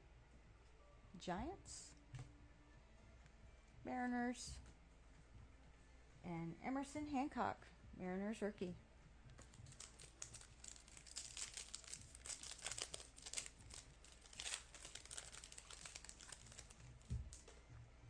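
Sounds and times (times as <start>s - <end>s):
foil wrapper crinkling: 9.4s - 17.5s.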